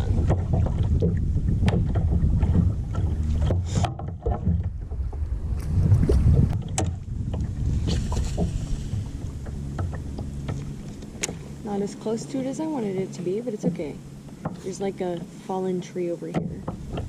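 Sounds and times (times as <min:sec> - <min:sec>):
paddle knocks and splashes: 0:00.0 - 0:11.4, 0:16.3 - 0:17.0
wind on microphone: 0:00.0 - 0:15.2.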